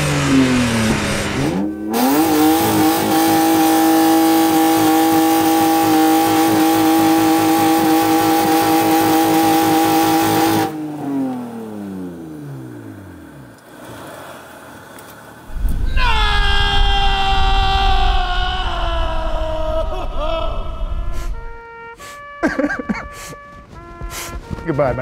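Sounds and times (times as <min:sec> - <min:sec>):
car engine revving high: 0:00.0 - 0:14.2.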